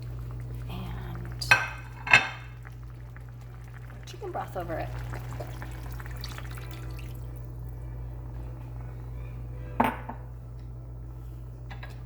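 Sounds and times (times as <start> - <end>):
broth pouring into a pan: 0.0 - 7.8
steady low hum: 0.0 - 12.0.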